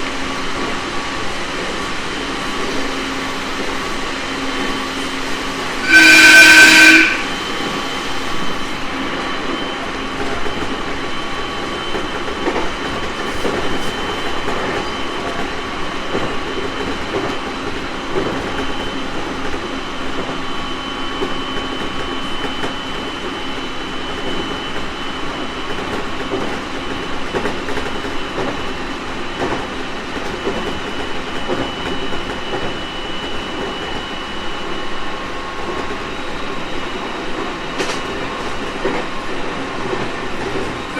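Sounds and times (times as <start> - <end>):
electric train running: 0.0 - 40.9
train horn blast: 5.7 - 7.5.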